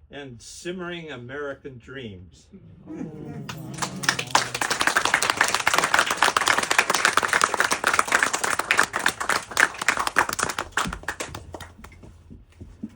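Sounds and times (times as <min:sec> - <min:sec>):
audience applauding: 0:02.9 - 0:12.1.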